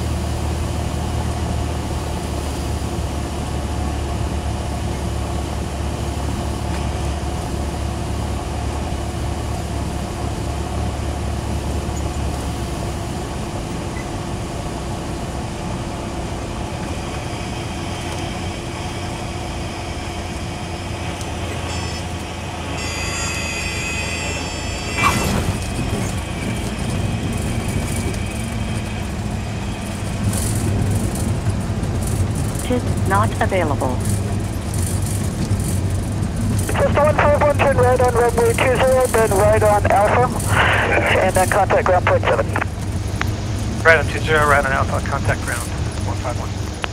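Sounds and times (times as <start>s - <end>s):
aircraft engine and propeller drone: 0.0s - 46.9s
high-pitched warning tone: 21.5s - 26.9s
rollout rumble: 24.2s - 46.9s.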